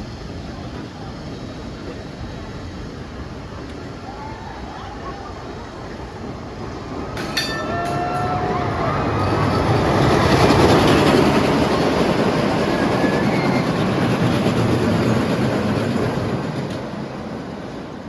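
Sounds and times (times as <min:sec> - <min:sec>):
roller coaster rumbling on track: 0:00.0 - 0:18.0
wheel squeal: 0:12.6 - 0:14.0.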